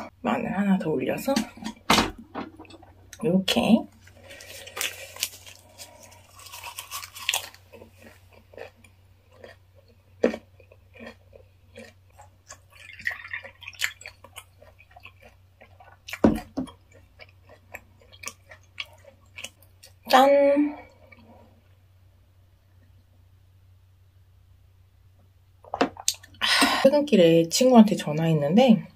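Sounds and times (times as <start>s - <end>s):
wet chewing and crunches: 3.9s - 20.1s.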